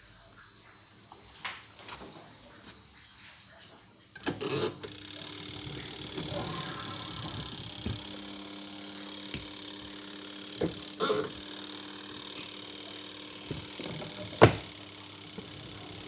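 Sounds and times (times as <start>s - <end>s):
faint steady hum: 4.2s - 16.0s
sharp clicks and knocks: 4.2s - 16.0s.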